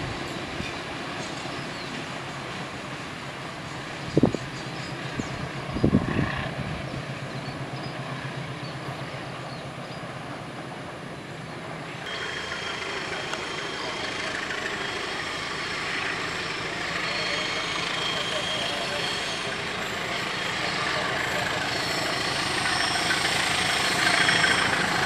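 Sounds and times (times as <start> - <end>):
train wagons rumbling: 0.0 - 25.0
faint high whine: 11.4 - 25.0.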